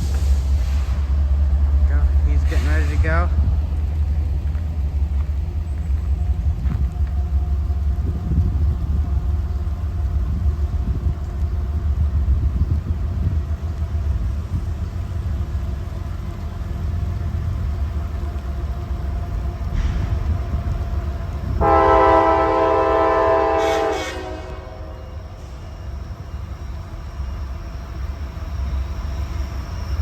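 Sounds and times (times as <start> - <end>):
diesel locomotives idling: 0.0 - 30.0
loud locomotive horn chord: 21.6 - 25.3.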